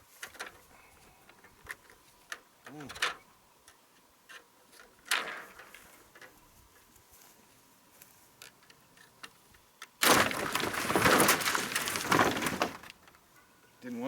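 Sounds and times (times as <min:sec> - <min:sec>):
slab wood falling and tumbling: 0:10.0 - 0:13.1.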